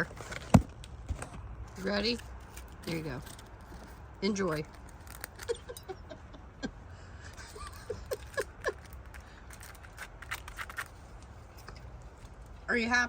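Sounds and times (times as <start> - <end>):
beak tearing foam sponge: 4.6 - 5.5, 8.2 - 11.0.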